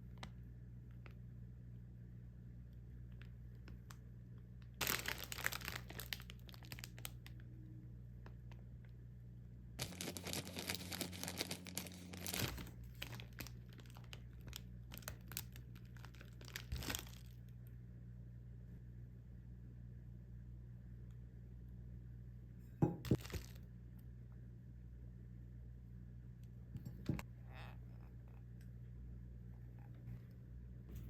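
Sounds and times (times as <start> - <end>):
light crackles and clicks of handling: 0.0 - 1.3, 2.7 - 4.8
plastic packaging crinkling and tearing: 4.8 - 7.4, 9.8 - 17.4, 23.1 - 23.6.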